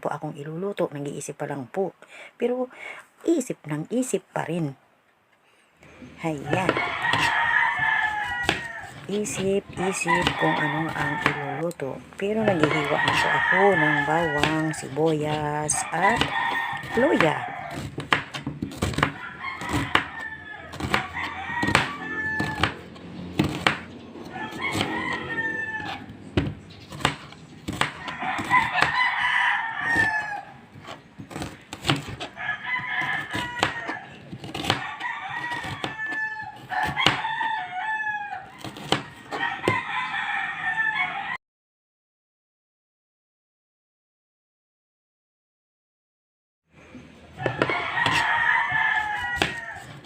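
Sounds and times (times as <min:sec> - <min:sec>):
roosters crowing: 0:06.2 - 0:41.4, 0:47.3 - 0:50.0
knife chopping on cutting board: 0:06.5 - 0:11.4, 0:12.4 - 0:23.9, 0:25.8 - 0:29.0, 0:30.8 - 0:32.4, 0:33.0 - 0:37.5, 0:38.6 - 0:39.8, 0:47.4 - 0:50.0.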